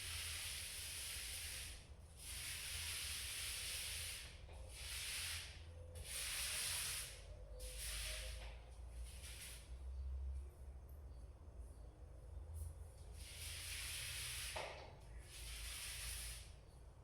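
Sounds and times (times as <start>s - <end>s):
paint roller strokes on wall: 0.0s - 10.1s, 13.0s - 16.8s.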